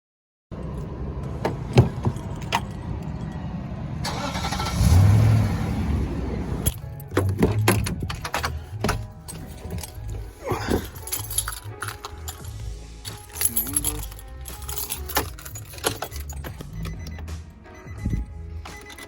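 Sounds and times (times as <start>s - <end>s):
vehicle engine rumbling: 0.5s - 19.0s
sharp clicks and rattles: 6.6s - 10.1s.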